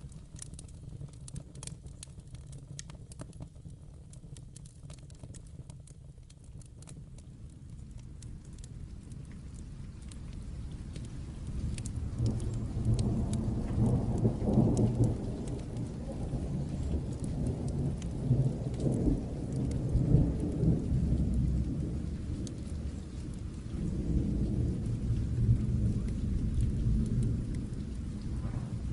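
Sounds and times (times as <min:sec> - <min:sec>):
steady rain: 0:00.0 - 0:28.9
wood fire crackling: 0:00.0 - 0:28.9
rolling thunder rumble: 0:08.4 - 0:28.9.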